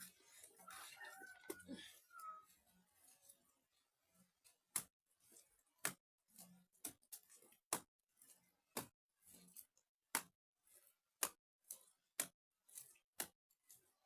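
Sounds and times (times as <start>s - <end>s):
hands slapping wet mud: 4.7s - 4.9s, 5.8s - 6.0s, 6.8s - 7.9s, 8.7s - 9.0s, 9.6s - 10.4s, 12.1s - 13.4s.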